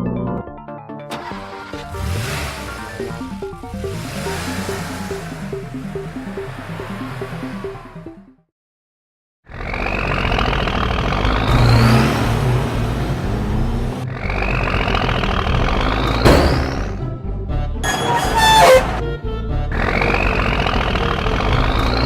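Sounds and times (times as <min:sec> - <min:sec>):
engine revving with rising whine: 0:01.8 - 0:08.1, 0:09.5 - 0:16.8
sharp hit: 0:16.2 - 0:17.1.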